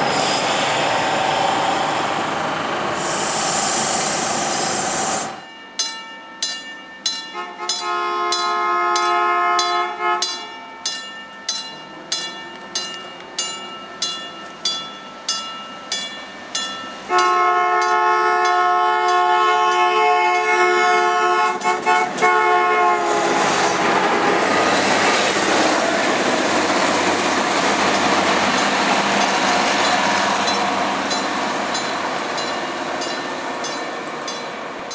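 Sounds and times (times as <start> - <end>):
train rolling rumble: 0.0 - 5.8, 11.4 - 34.9
level crossing warning bell: 5.4 - 20.0, 28.6 - 34.9
train horn blasts: 7.3 - 10.4, 17.1 - 23.8.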